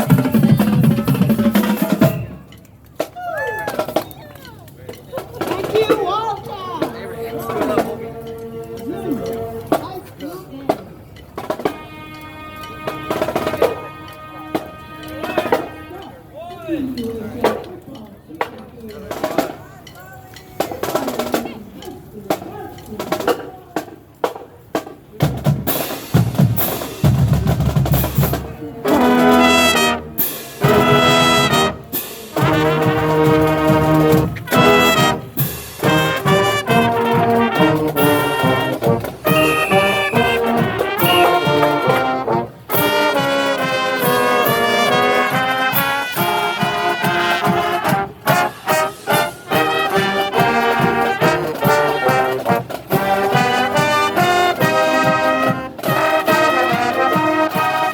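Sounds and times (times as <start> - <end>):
brass held chords: 11.6 - 16.2, 28.8 - 57.9
marching band drum hits: 25.2 - 57.9.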